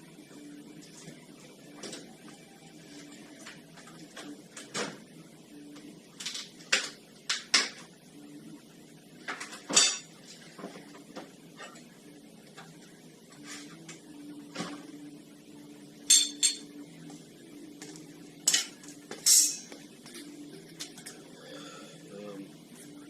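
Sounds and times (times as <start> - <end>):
metal tools clinking and clanking: 18.5 - 19.7.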